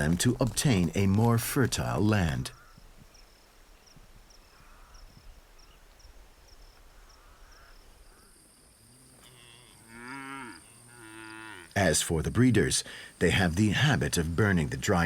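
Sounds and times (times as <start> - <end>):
faint insect chirping: 2.5 - 11.8
cattle mooing: 9.2 - 11.8.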